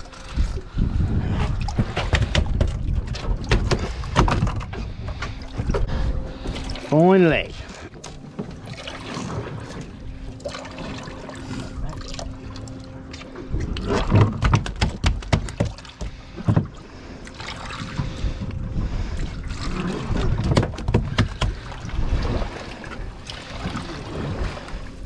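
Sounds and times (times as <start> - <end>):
boat engine humming: 0.0 - 25.0
knocks and thumps: 1.7 - 5.9, 14.2 - 16.7, 20.4 - 21.7.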